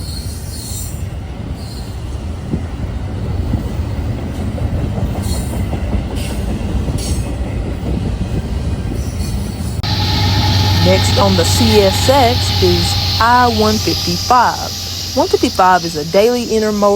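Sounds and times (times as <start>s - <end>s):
train wheels rumbling on rail: 0.0s - 16.9s
high-pitched wheel squeals: 9.8s - 16.9s.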